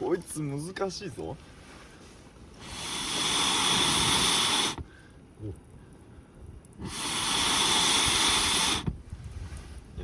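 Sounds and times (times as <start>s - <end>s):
gas torch hissing: 2.5s - 4.9s, 6.8s - 9.2s.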